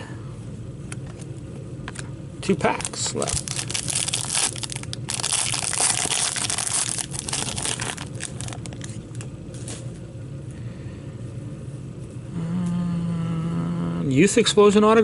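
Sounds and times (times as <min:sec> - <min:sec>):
card pack wrapper tearing and crinkling: 0:02.6 - 0:09.3.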